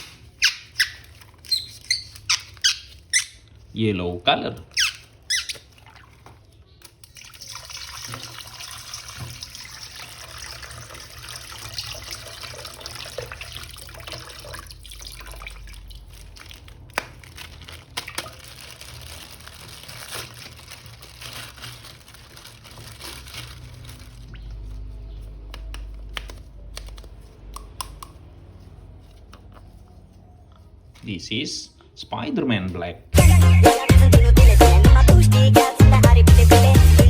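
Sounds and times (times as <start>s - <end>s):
running and splashing water: 5.6s - 24.6s.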